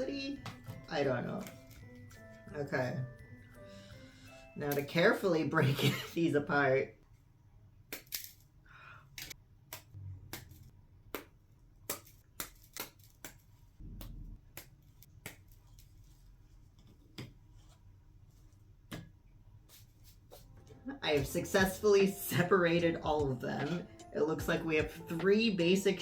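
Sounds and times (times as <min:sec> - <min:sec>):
gingerbread snapping: 0:09.2 - 0:15.9.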